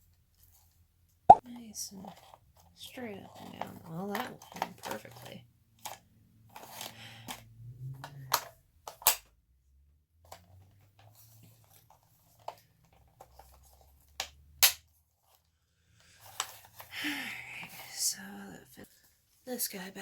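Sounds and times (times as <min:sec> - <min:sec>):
plastic parts clicking and snapping: 0:08.0 - 0:09.3, 0:11.7 - 0:14.8.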